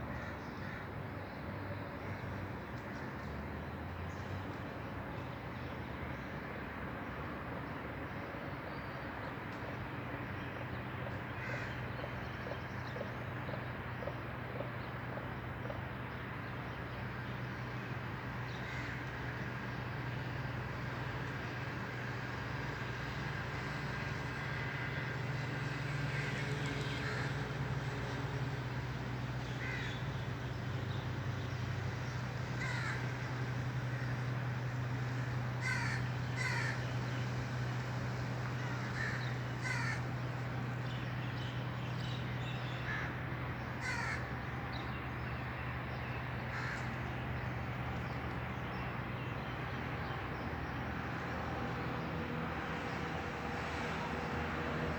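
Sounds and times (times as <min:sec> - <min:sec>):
crow cawing: 0:11.4 - 0:11.7, 0:27.0 - 0:27.3, 0:29.6 - 0:29.9, 0:32.6 - 0:33.0, 0:35.6 - 0:36.8, 0:38.6 - 0:40.1, 0:43.8 - 0:44.3, 0:46.5 - 0:46.9.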